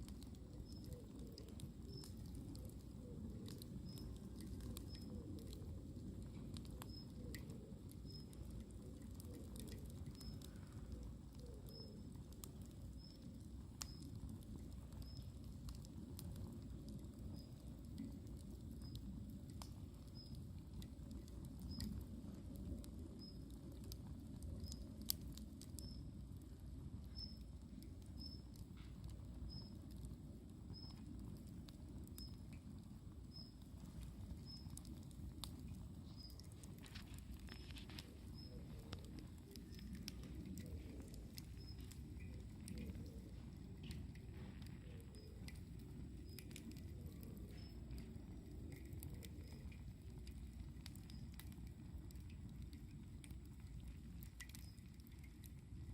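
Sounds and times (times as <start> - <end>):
campfire crackling and popping: 0.0 - 55.9
faint high chirp: 10.1 - 10.5, 41.4 - 42.4.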